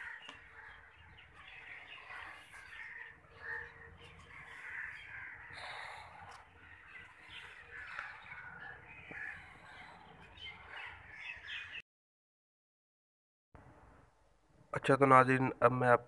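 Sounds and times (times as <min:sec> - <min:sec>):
faint birds calling: 0:00.0 - 0:11.8.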